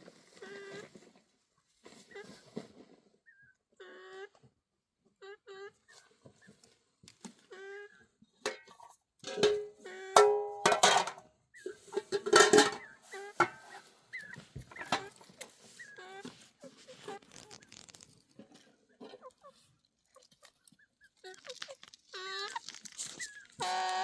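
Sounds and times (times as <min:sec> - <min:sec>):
clattering and rustling: 0:08.5 - 0:19.4.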